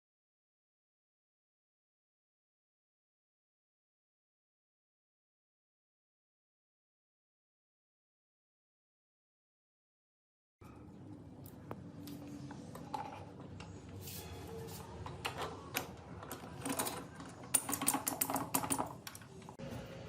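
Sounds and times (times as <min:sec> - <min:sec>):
metal parts and tools clicking: 0:14.9 - 0:19.6.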